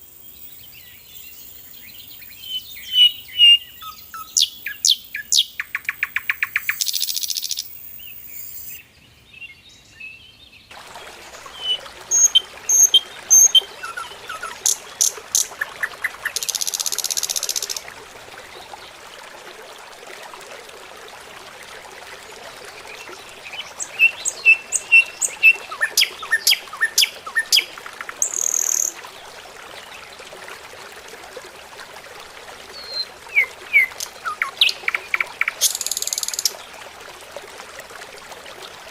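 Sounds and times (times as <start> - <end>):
small birds chirping: 9.4 - 17.8.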